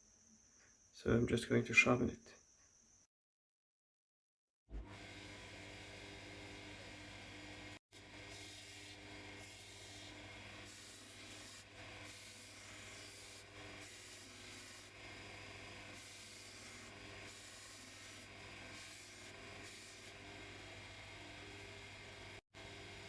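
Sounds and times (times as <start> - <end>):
knife grinding on belt sharpener: 10.7 - 15.0.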